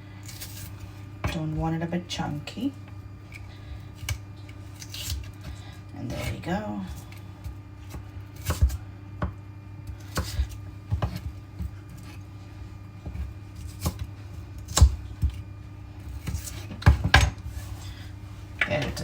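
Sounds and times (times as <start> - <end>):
knife chopping on cutting board: 7.4 - 12.2, 13.0 - 15.4, 16.0 - 17.7.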